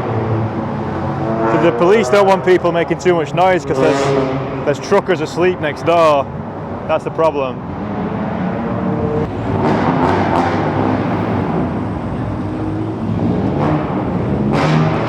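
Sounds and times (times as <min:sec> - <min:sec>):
broad rush of noise: 0:00.0 - 0:15.0
car engines running: 0:00.0 - 0:15.0.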